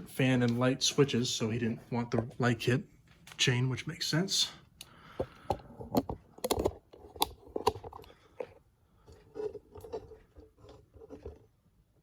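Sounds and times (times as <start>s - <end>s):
handling clicks and taps: 4.8s - 8.6s.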